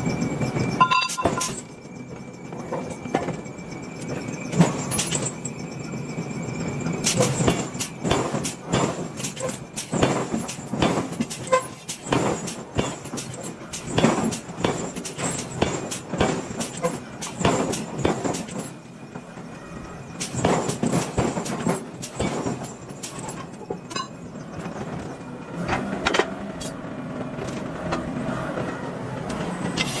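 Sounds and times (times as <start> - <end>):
steady machinery noise: 0.0 - 30.0
metal clanks and knocks: 0.8 - 1.7, 20.2 - 24.2.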